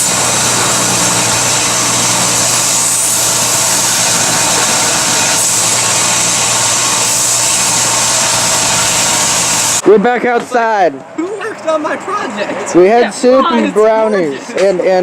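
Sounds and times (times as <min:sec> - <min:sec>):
forge blower humming: 0:00.0 - 0:09.8.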